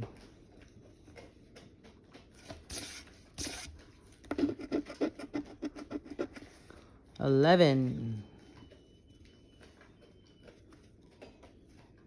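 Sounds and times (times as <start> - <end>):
scratching lottery ticket: 4.3 - 6.6.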